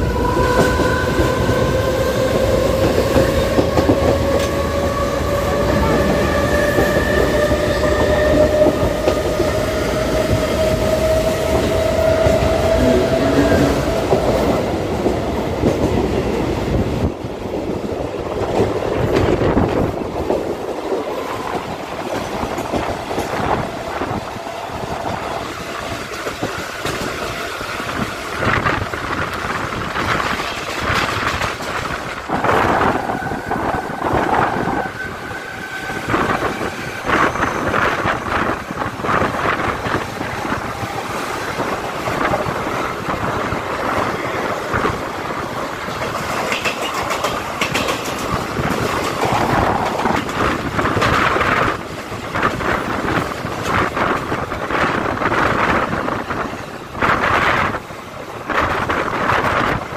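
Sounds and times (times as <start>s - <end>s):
passing train alongside: 0.0s - 59.9s
train wheels rumbling on rail: 0.0s - 59.9s
clacks over rail joints: 45.8s - 51.7s.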